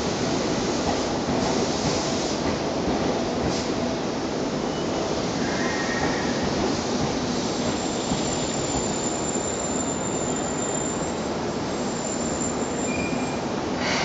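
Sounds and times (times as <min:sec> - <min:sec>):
train wheel and running noise: 0:00.0 - 0:14.0
faint wheel squeal: 0:07.8 - 0:13.4.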